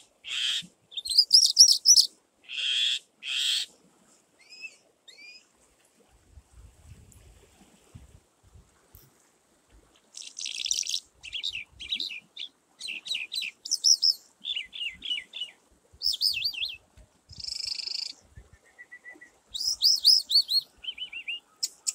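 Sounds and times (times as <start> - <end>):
small birds chirping: 0.3 - 2.1, 10.1 - 18.8, 19.5 - 21.9.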